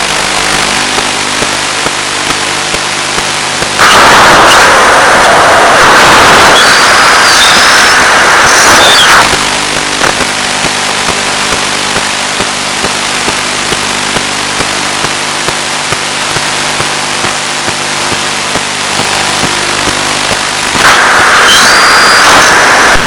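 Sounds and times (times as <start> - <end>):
radio hiss: 0.0 - 23.0
noise with whistling tones: 0.1 - 23.0
low steady hum: 9.3 - 20.8.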